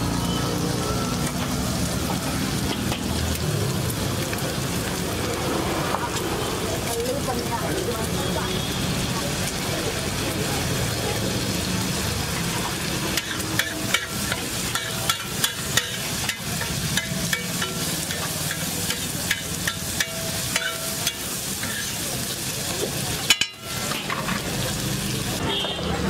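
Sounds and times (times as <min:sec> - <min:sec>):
egg mixture sizzling on griddle: 0:00.0 - 0:25.8
spatula scraping griddle: 0:12.8 - 0:22.2, 0:23.2 - 0:24.7.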